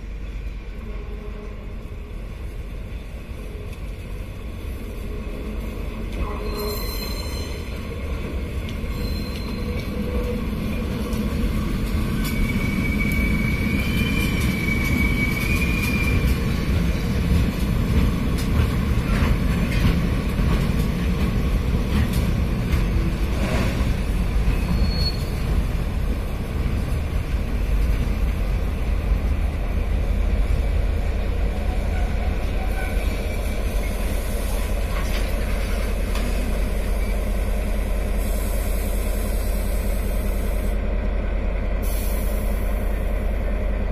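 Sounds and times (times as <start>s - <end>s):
train rumbling slowly: 0.0s - 43.9s
train wheel squeal: 5.0s - 8.1s, 8.7s - 17.3s, 23.4s - 25.6s, 31.6s - 40.8s
wheel squeaks and clicks: 8.9s - 9.9s, 12.2s - 16.4s.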